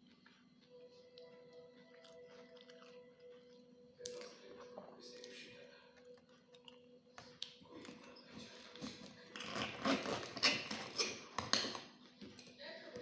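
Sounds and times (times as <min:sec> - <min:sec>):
clicky mouth eating noises: 0:01.9 - 0:04.4, 0:06.0 - 0:08.1.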